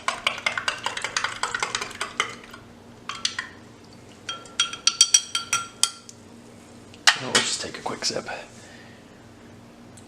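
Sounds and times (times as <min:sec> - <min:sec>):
spoon clinking against glass: 0:04.3 - 0:06.0.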